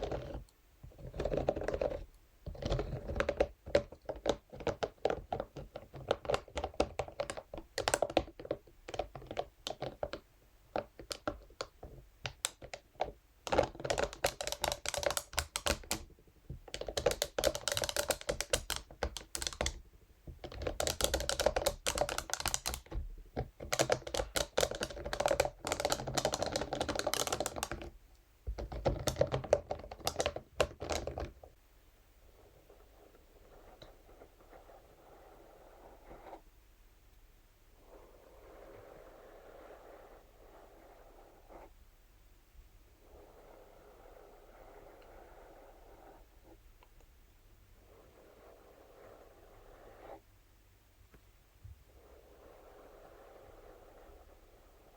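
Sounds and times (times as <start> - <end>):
brush tapping: 0.0 - 31.3.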